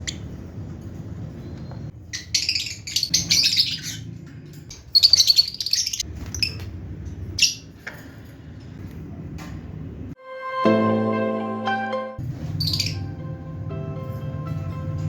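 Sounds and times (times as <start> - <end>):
lovebirds twittering: 1.3 - 7.8, 12.5 - 13.2.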